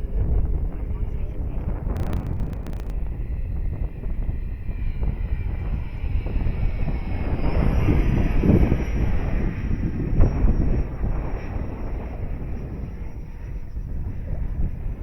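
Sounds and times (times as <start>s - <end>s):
heavy low rumble: 0.0s - 7.4s
model jet fan whine: 0.0s - 15.0s.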